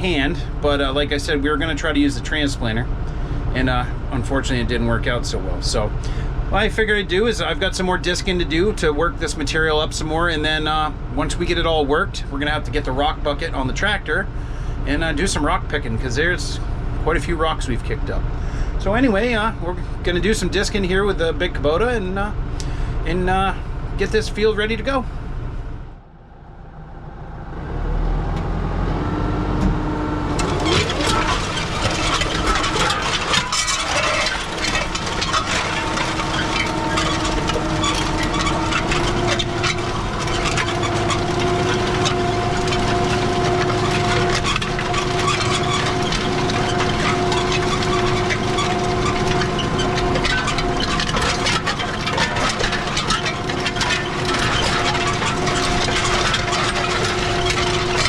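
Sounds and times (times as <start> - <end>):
harrow clattering and rattling: 0.0 - 14.2, 30.3 - 58.0
tractor diesel engine under load: 0.0 - 58.0.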